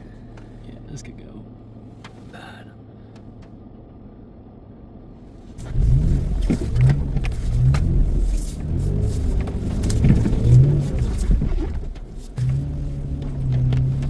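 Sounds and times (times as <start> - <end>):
truck engine revving: 5.6 - 11.8.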